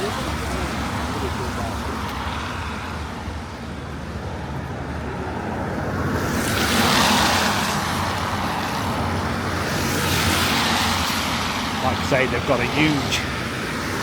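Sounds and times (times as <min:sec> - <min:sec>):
road traffic rumble: 0:00.0 - 0:14.0
car tyres hissing on wet road: 0:06.2 - 0:11.8.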